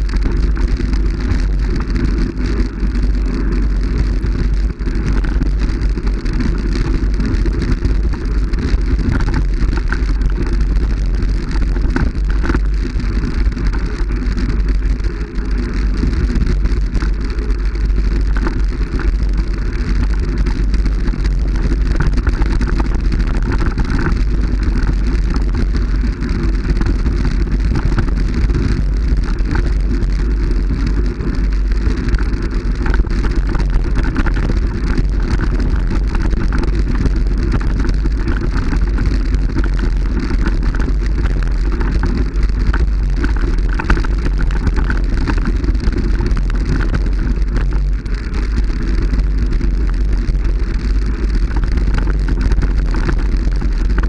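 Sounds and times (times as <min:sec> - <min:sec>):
strong low rumble: 0:00.0 - 0:54.0.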